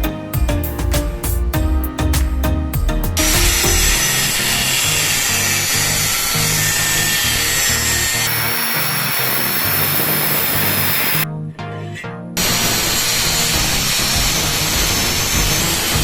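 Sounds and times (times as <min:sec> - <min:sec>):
background music: 0:00.0 - 0:16.0
power tool whining: 0:03.2 - 0:11.2, 0:12.4 - 0:16.0.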